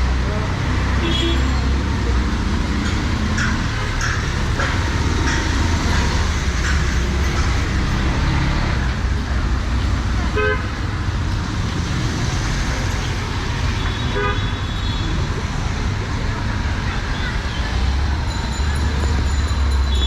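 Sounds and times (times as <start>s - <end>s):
traffic engine rumble: 0.0s - 20.0s
car horn toots: 1.0s - 1.6s.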